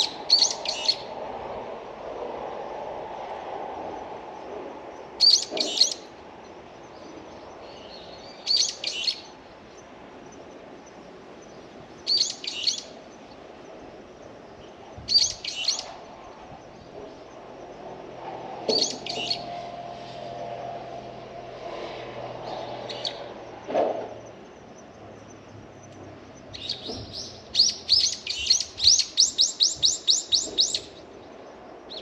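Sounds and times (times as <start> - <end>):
songbird chirping: 0.0 - 1.1, 5.0 - 17.9, 18.7 - 20.3, 22.5 - 23.6, 24.2 - 32.0
faint outdoor hiss: 0.0 - 32.0.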